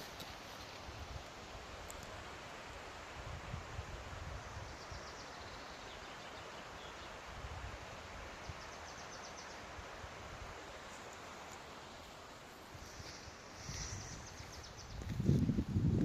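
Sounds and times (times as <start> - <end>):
wind rustle: 0.0 - 16.0
wind rumble on microphone: 3.2 - 4.8, 13.0 - 16.0.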